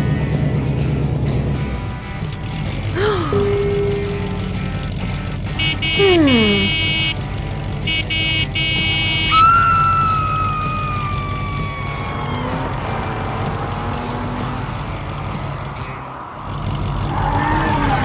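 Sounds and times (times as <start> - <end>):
low engine rumble: 0.0 - 18.0
rapid beeping: 5.6 - 7.2, 7.8 - 10.8
downward sliding whistle tone: 8.6 - 12.6.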